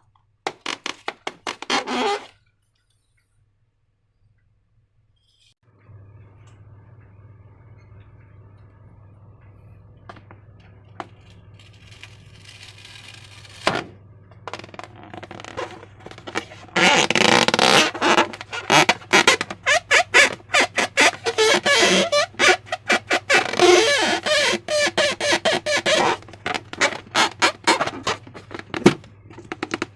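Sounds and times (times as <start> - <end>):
steady low hum: 5.7 - 29.6.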